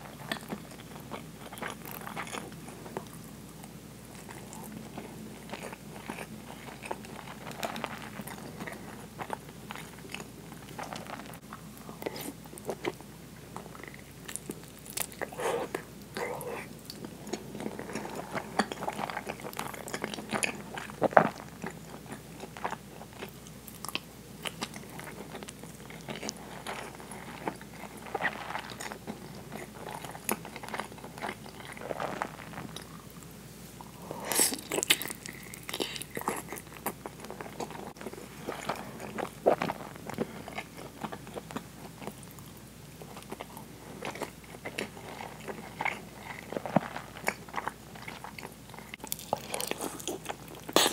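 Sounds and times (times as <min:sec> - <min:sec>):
wet chewing and biting: 0:34.3 - 0:50.9.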